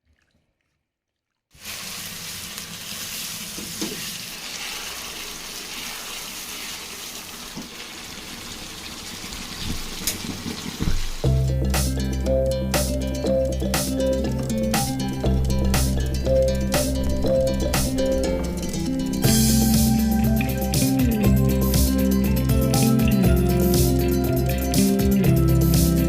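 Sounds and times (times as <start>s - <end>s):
food sizzling in hot oil: 1.6s - 11.3s
oil popping: 9.2s - 25.3s
music: 10.8s - 26.0s.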